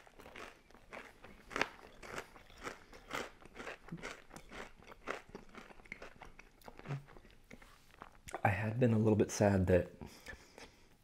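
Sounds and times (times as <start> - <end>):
crunchy chewing of pizza crust: 0.0 - 8.2.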